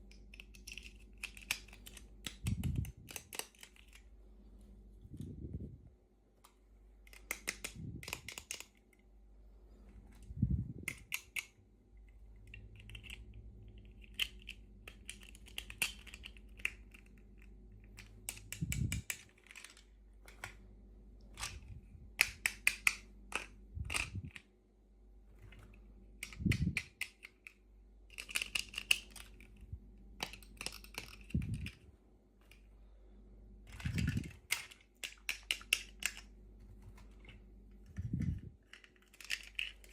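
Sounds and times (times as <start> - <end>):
plastic packaging clicking and crinkling: 6.4 - 8.8, 30.2 - 32.6, 38.0 - 39.9.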